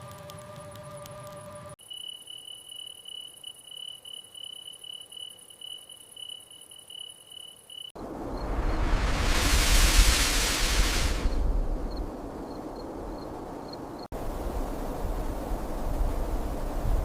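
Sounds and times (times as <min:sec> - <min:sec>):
crickets chirping: 0:00.4 - 0:15.0
loud rushing noise: 0:08.0 - 0:11.4.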